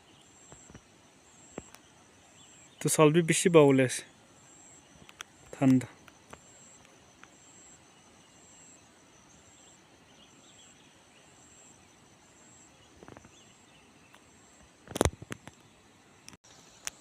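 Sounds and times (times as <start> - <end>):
background hiss: 0.0 - 17.0
insect chirping: 0.0 - 17.0.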